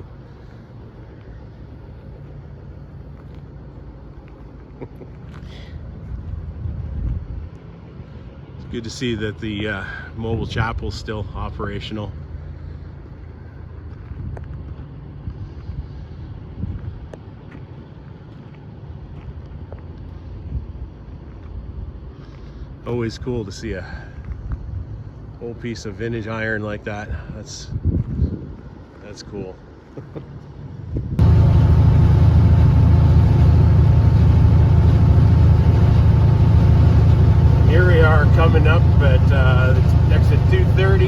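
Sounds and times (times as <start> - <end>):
truck diesel engine cruising: 0.0 - 21.3, 30.4 - 41.0
low vehicle rumble: 0.0 - 26.1, 29.6 - 41.0
wind on microphone: 27.7 - 28.7, 30.8 - 31.3.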